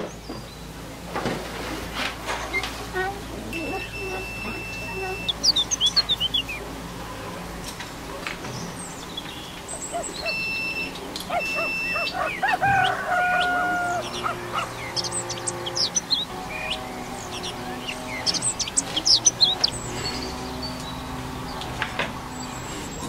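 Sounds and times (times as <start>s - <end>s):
birds chirping: 0.0s - 23.0s
multimeter beeps: 10.2s - 12.4s.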